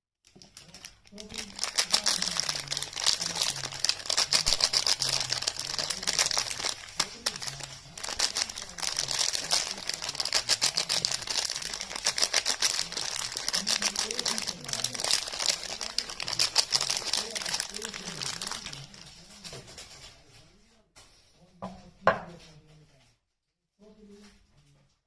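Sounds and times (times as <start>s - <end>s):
packaging crinkling: 0.3s - 20.1s.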